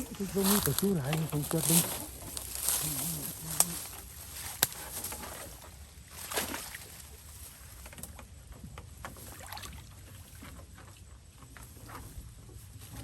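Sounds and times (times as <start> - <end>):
water splashing and sloshing: 0.0 - 12.2.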